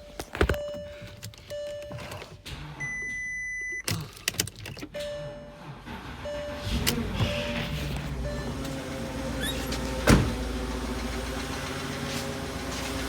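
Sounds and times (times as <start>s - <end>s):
car engine ticking: 4.5s - 13.0s.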